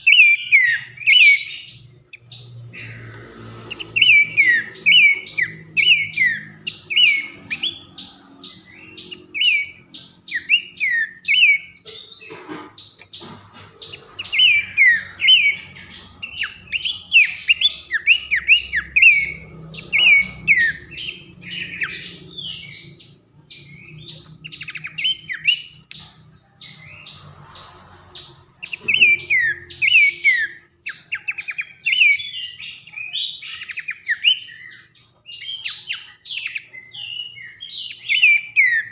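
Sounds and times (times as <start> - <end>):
bird singing falling whistles: 0.0 - 3.0, 12.8 - 25.8.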